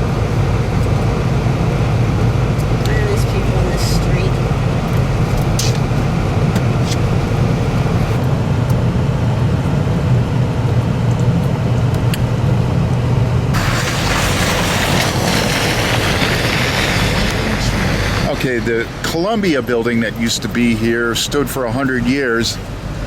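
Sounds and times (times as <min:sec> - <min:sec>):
car road noise rumble: 0:00.0 - 0:23.0
loud hiss: 0:13.6 - 0:19.6.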